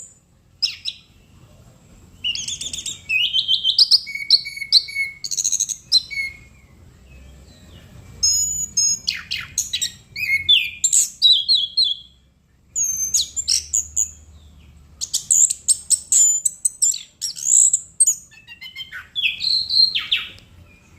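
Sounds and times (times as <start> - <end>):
thrush singing whistled phrases: 2.2 - 6.6, 8.2 - 12.2, 12.8 - 14.2, 15.0 - 20.9.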